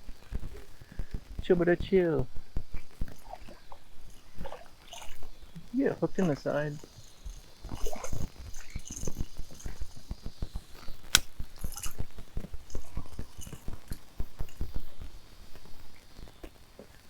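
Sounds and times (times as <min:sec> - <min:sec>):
sharp click: 0:11.0 - 0:11.9.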